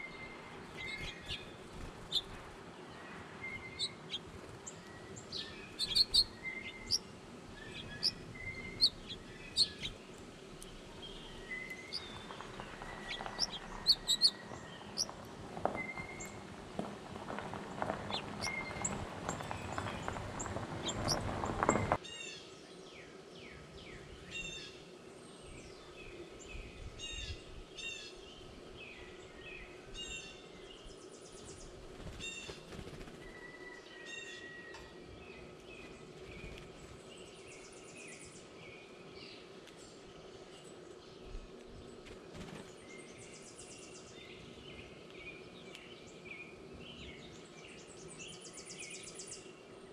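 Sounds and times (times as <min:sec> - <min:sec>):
birds chirping and whistling: 0:00.0 - 0:02.5, 0:03.4 - 0:10.2, 0:11.0 - 0:22.0
scratching and rustling on microphone: 0:11.9 - 0:22.0.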